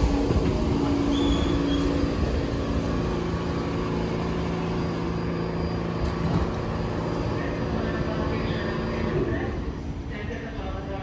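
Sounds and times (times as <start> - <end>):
train motors droning: 0.0 - 10.5
high wheel squeal: 0.8 - 8.9.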